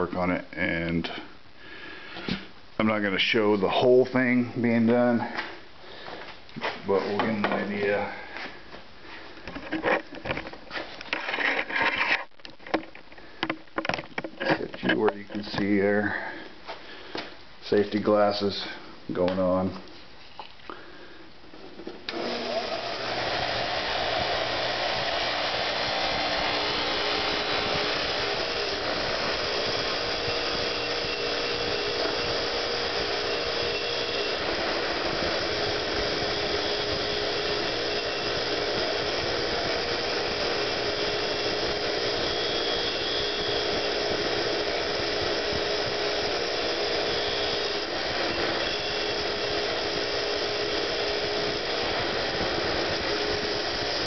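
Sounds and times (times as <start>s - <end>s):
bench grinder grinding metal: 22.1s - 54.0s.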